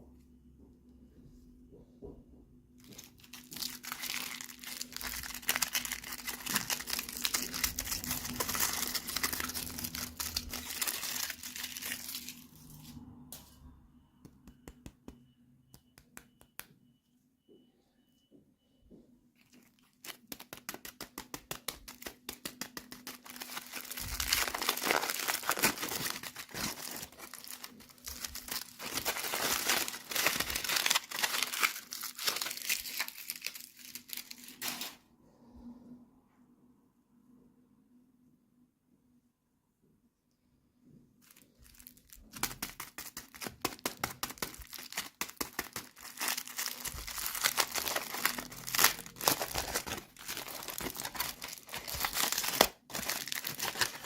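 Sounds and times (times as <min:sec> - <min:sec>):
plastic packaging crinkling and tearing: 0:02.8 - 0:12.9, 0:19.4 - 0:34.6, 0:41.2 - 0:54.0.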